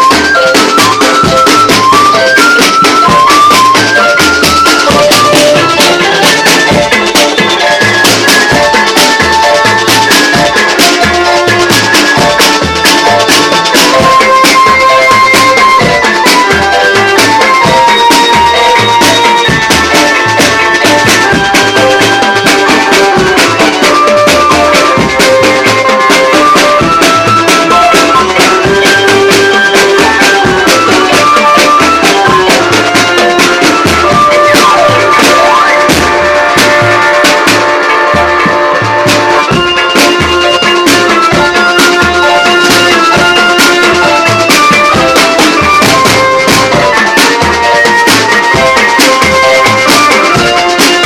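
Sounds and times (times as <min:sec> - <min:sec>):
band playing through sound system: 0:00.0 - 0:51.0
drums and percussion: 0:00.0 - 0:51.0.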